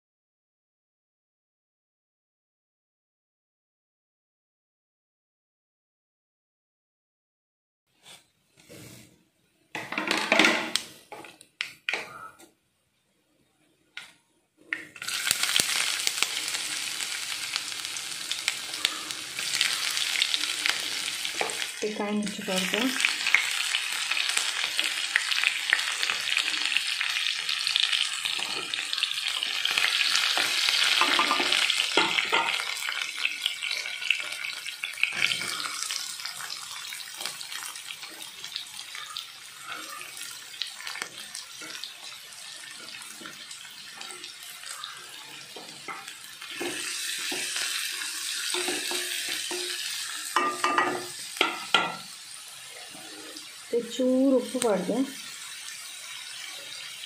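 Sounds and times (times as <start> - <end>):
oil sizzling in a pan: 14.6 - 57.0.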